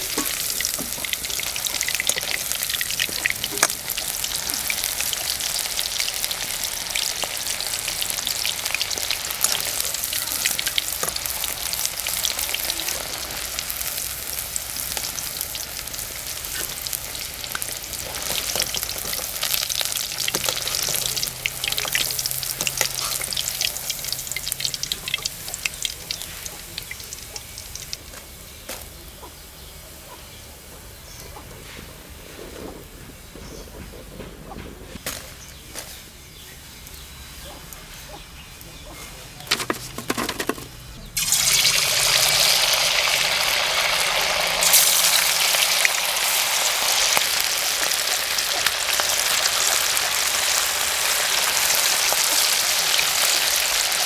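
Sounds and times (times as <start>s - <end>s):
chicken frying in hot oil: 0.0s - 33.6s, 34.5s - 54.0s.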